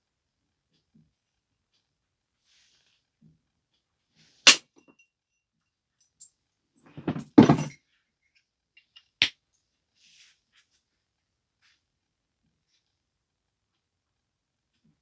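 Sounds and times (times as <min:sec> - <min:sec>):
scraping and handling noise: 0:06.9 - 0:07.8.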